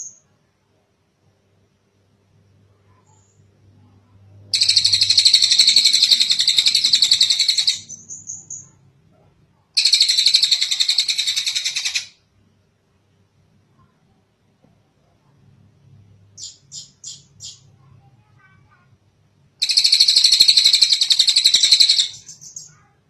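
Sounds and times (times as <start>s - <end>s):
bird singing high trills: 4.5s - 8.8s, 9.8s - 12.2s, 16.4s - 17.7s, 19.6s - 22.8s.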